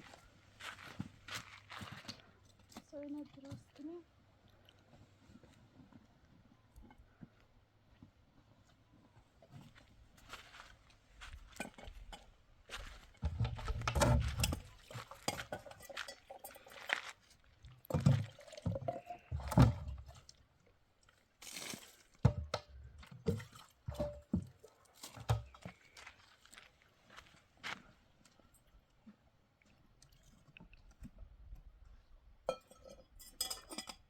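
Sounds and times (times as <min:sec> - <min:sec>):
objects knocking and clinking: 0:14.2 - 0:16.8.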